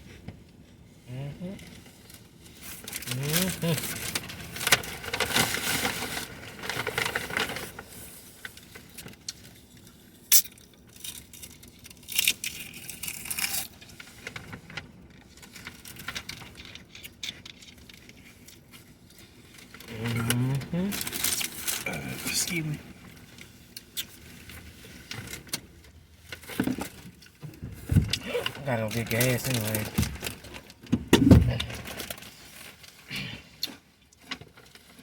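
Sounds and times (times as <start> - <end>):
food wrappers crinkling: 2.1 - 27.5, 28.4 - 30.9.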